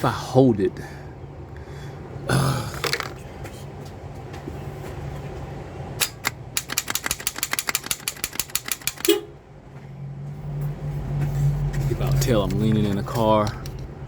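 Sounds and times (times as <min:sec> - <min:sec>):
starter solenoid rapid clicking: 0:06.0 - 0:09.2.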